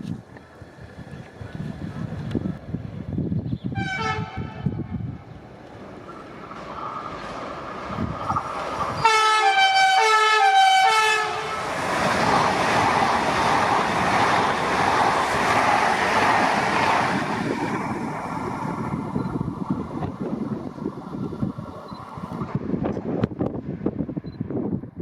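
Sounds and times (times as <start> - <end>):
train rumbling: 0.0 - 24.5
train horn: 3.8 - 5.0, 9.0 - 11.6.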